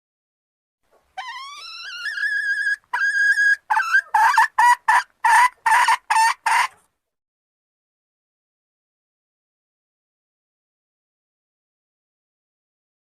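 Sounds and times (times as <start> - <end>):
junglefowl hen calling: 1.2 - 6.8.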